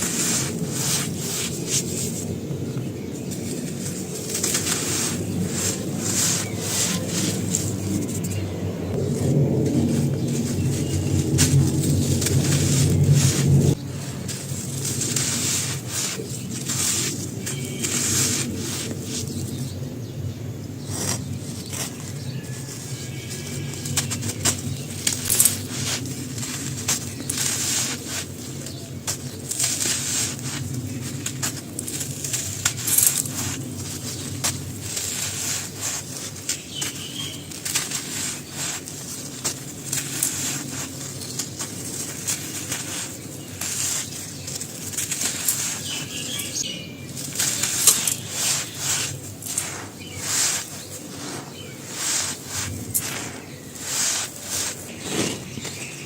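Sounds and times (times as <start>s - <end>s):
brittle material crackling and snapping: 21.6s - 51.0s.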